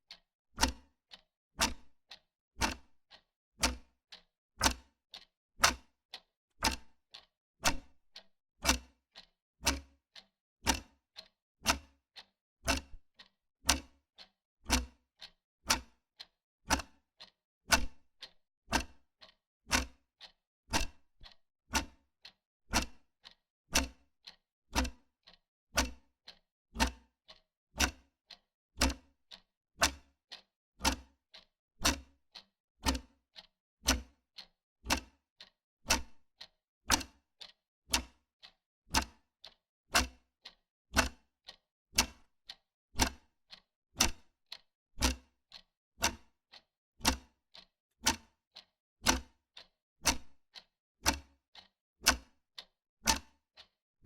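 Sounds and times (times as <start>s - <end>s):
wall clock ticking: 2.6s - 2.9s, 18.7s - 22.0s, 22.7s - 24.0s, 24.8s - 25.0s, 29.8s - 38.2s, 39.0s - 42.3s, 43.0s - 43.3s, 46.0s - 53.7s.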